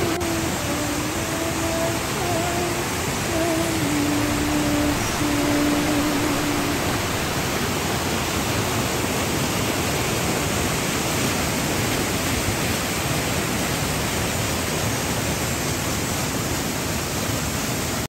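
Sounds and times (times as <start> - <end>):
waterfall crashing: 0.0 - 18.0.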